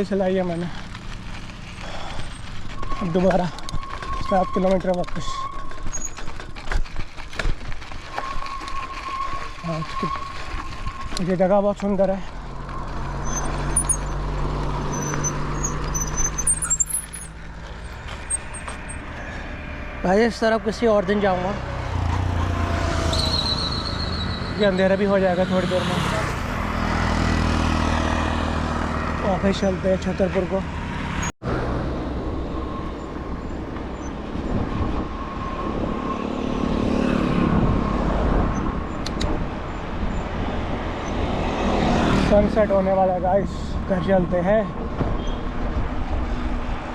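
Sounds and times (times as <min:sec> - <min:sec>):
outdoor background noise: 0:00.0 - 0:46.9
tyre and road rumble: 0:00.0 - 0:46.9
vehicle engine hum: 0:00.0 - 0:46.9
wind buffeting microphone: 0:32.2 - 0:36.2, 0:37.2 - 0:42.1.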